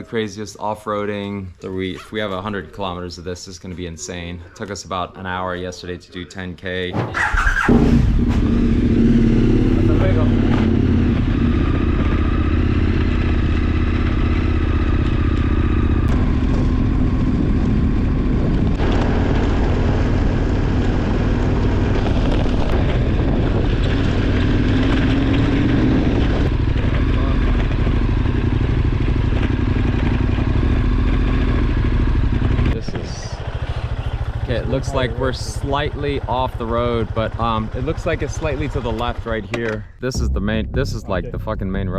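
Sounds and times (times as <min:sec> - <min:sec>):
motorcycle engine running: 0:07.2 - 0:39.6.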